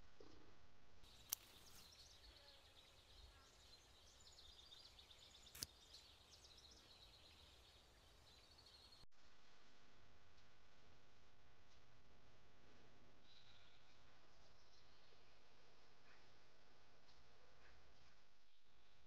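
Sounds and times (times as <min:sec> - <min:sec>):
faint birds chirping: 0:00.0 - 0:09.1, 0:12.7 - 0:19.0
sharp clicks: 0:01.1 - 0:01.8, 0:05.4 - 0:05.8.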